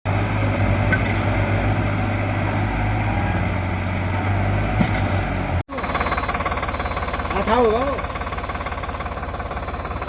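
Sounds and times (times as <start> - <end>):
diesel tractor engine running: 0.1 - 10.0.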